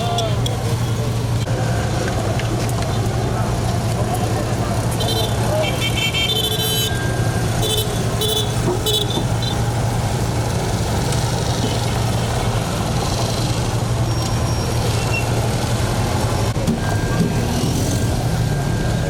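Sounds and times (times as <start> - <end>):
engine and traffic noise: 0.0 - 19.0
vehicle horns tooting: 5.0 - 9.7.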